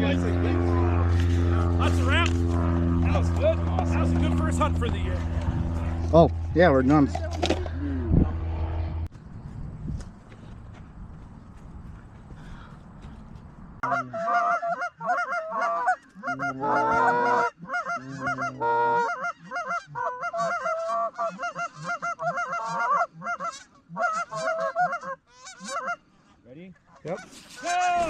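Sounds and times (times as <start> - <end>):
low wind rumble: 0.0 - 13.9
geese honking: 13.8 - 26.1.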